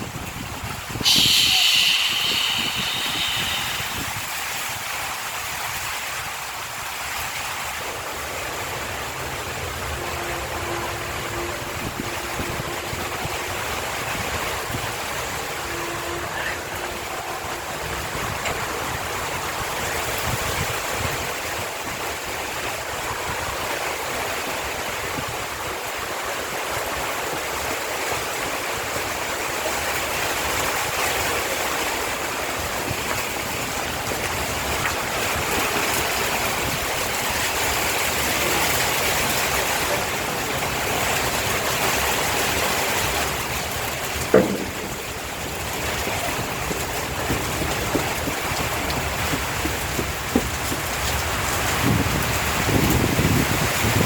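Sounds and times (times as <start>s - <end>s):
heavy rain falling: 0.0s - 21.5s, 26.7s - 54.0s
sharp knock: 1.0s - 4.5s, 44.3s - 45.2s.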